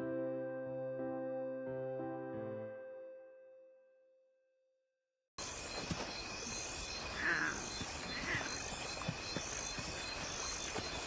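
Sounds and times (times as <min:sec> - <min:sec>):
chorus of insects: 0:05.4 - 0:11.0
pulsing insect trill: 0:05.4 - 0:11.0
animal call: 0:07.0 - 0:09.1.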